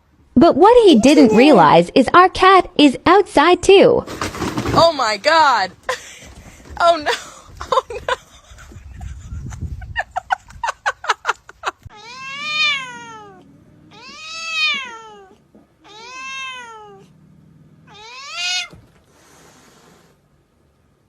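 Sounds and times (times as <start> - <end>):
cat yowling: 11.9 - 17.1, 17.8 - 18.9.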